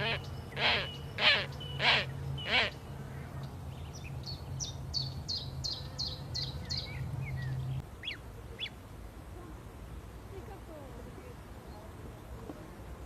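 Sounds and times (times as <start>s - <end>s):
bird harsh calls: 0.0s - 2.9s.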